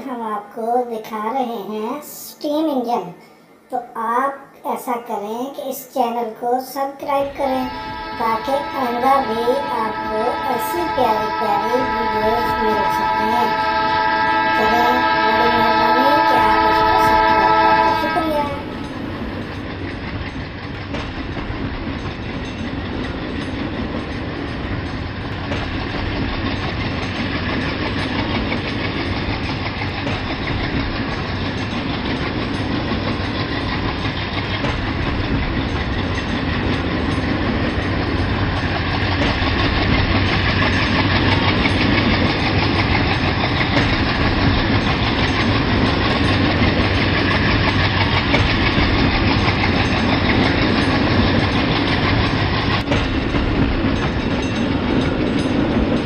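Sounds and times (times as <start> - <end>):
train rumbling on track: 7.0 - 56.0
train whistle chord: 7.2 - 19.6.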